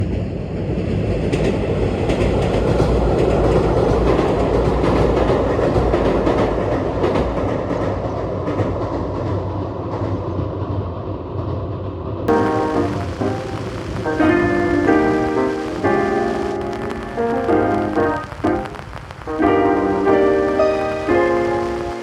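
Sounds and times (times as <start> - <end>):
electric train on rails: 0.0 - 22.0
wheels clicking over rail joints: 1.3 - 9.4.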